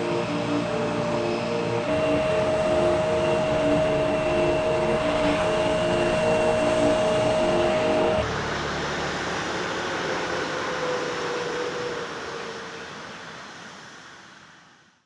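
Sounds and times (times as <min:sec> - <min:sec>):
jet engine rushing: 0:01.5 - 0:12.4.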